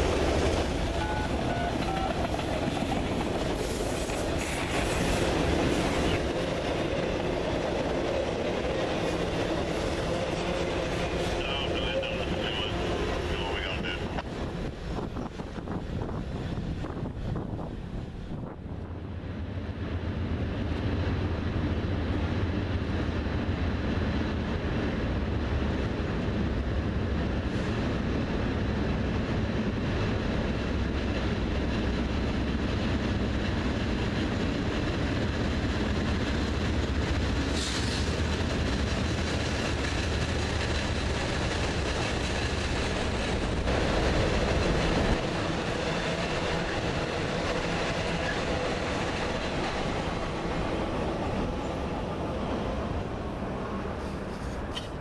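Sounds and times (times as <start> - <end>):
train wheels clattering on rails: 0.0 - 11.5, 24.4 - 51.8
diesel locomotive engine rumble: 0.0 - 55.0.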